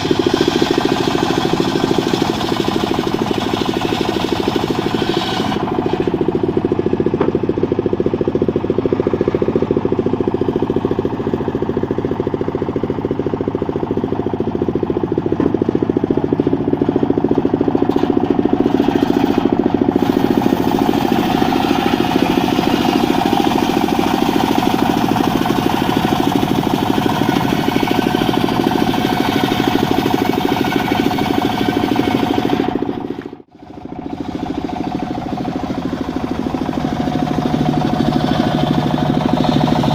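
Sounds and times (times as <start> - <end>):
engine firing: 0.0 - 39.9
spinning saw blade drone: 18.0 - 39.9.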